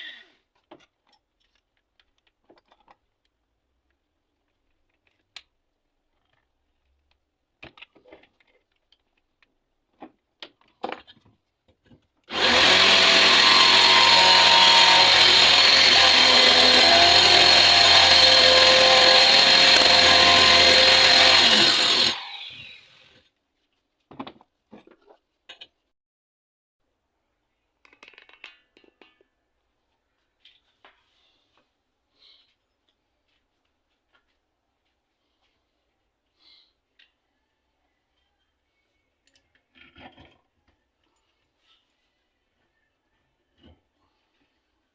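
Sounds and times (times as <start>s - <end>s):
scroll saw running: 12.3s - 23.2s.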